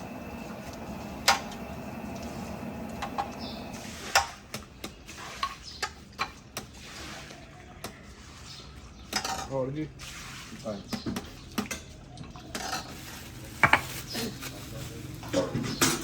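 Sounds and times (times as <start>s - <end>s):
steady low hum: 0.0s - 3.8s
metal utensils clinking on pots: 9.0s - 9.7s, 10.9s - 14.4s.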